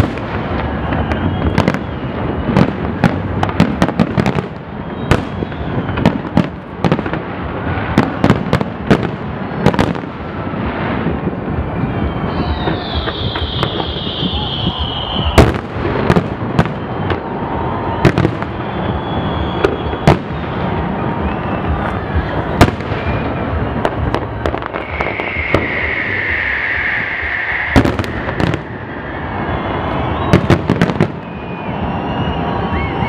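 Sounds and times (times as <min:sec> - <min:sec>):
firework bangs: 0:00.0 - 0:33.0
fireworks crackling: 0:00.0 - 0:33.0
high whistling tone: 0:00.6 - 0:02.8, 0:04.7 - 0:06.4, 0:11.6 - 0:15.6, 0:16.6 - 0:22.3, 0:22.9 - 0:33.0.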